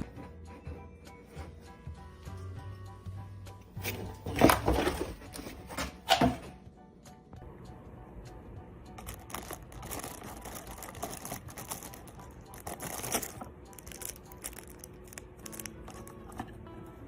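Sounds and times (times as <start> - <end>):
rustling and crinkling: 3.8 - 6.0, 9.0 - 16.6.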